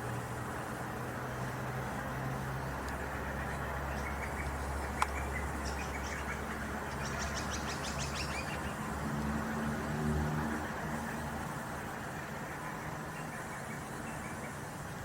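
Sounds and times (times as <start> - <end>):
bird chirping: 3.4 - 8.8.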